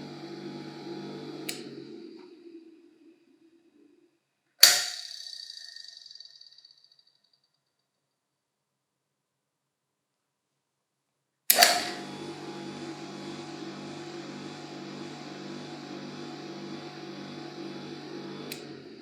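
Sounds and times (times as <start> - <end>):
polisher motor humming: 0.0 - 3.9, 11.5 - 19.0
motor spinning down: 0.0 - 4.1, 11.5 - 19.0
motor switch click: 1.2 - 2.4, 11.5 - 18.9.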